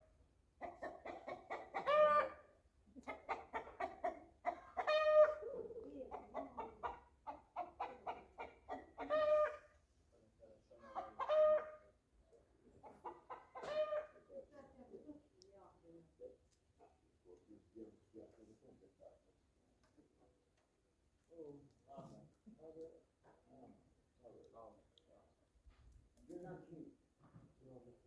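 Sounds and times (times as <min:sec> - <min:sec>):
hen cackling: 0:00.6 - 0:09.7, 0:10.8 - 0:11.9, 0:12.8 - 0:14.3.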